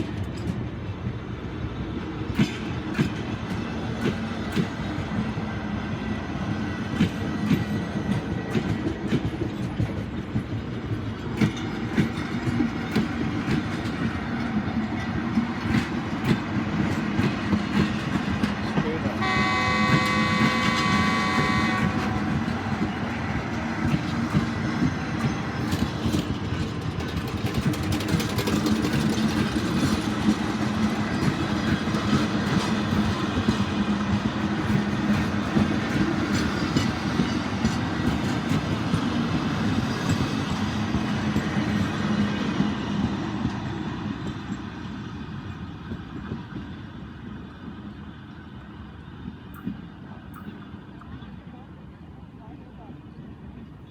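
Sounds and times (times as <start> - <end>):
train running past rumbling: 0.0 - 51.0
wheels clattering over rail joints: 6.5 - 46.7
train horn: 19.0 - 22.9.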